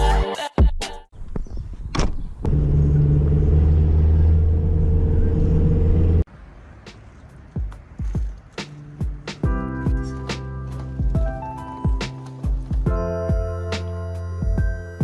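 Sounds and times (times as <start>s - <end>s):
engine humming: 2.3s - 8.9s.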